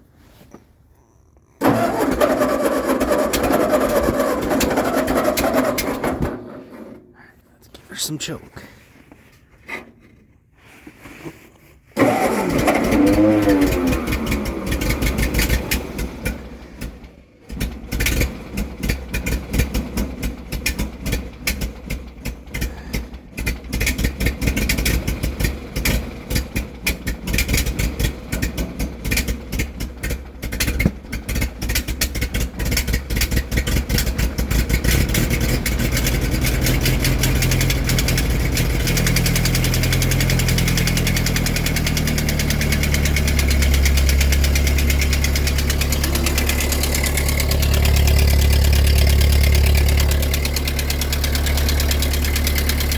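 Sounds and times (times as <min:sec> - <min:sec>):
starter cranking with whine: 0:01.6 - 0:07.1, 0:12.0 - 0:16.9, 0:32.6 - 0:52.9
tractor engine running roughly: 0:01.6 - 0:07.1, 0:12.0 - 0:52.9.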